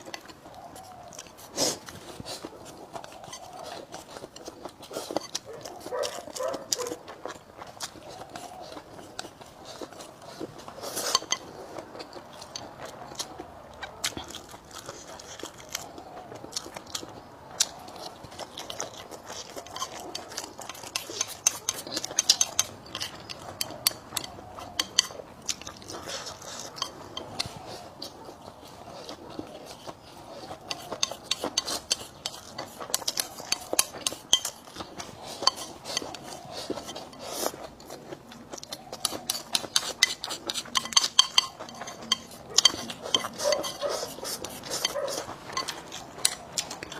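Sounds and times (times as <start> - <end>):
chewing: 0.0 - 46.9
utensils scraping a bowl: 7.8 - 11.8, 17.6 - 38.0, 38.9 - 46.9.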